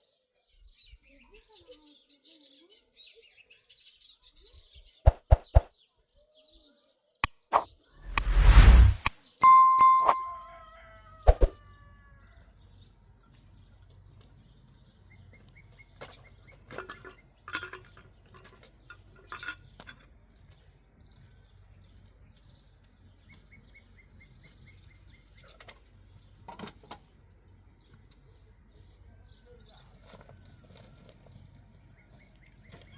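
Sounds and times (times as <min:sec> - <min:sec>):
small birds chirping: 0:00.2 - 0:07.4
sharp ringing clang: 0:09.4 - 0:10.4.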